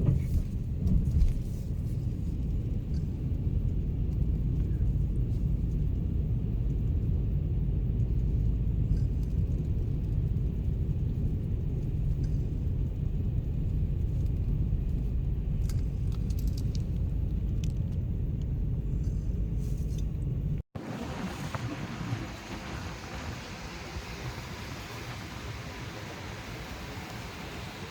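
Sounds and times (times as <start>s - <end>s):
low vehicle rumble: 0.0s - 27.9s.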